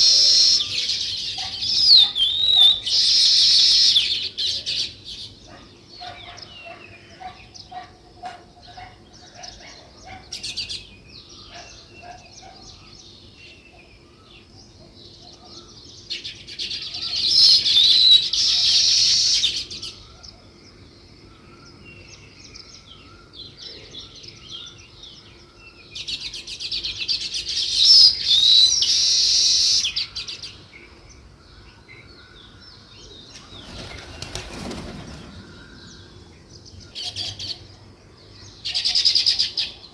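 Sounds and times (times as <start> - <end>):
bursts of dense bird chattering: 0.0 - 13.4, 27.4 - 39.9
songbirds chirping: 0.0 - 39.9.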